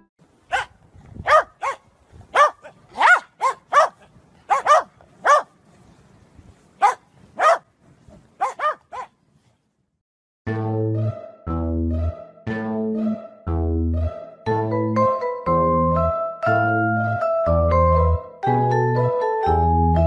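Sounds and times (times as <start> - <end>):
dog barking: 0.5 - 5.5, 6.8 - 7.7, 8.4 - 9.2.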